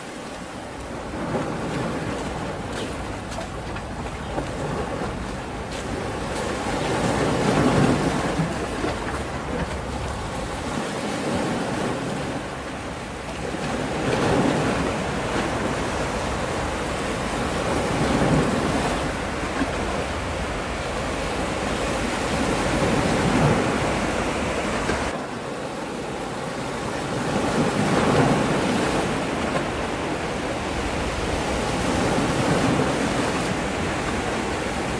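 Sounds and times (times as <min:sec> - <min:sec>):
sea waves washing onto shore: 0:00.0 - 0:34.9
wind noise on microphone: 0:00.3 - 0:25.2.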